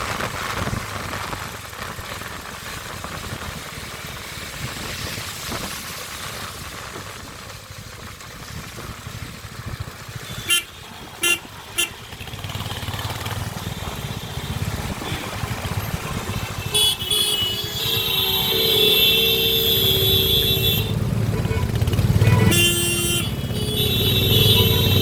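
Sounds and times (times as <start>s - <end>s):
motorcycle engine running: 1.5s - 25.0s
vehicle horn tooting: 10.2s - 12.0s, 16.5s - 25.0s.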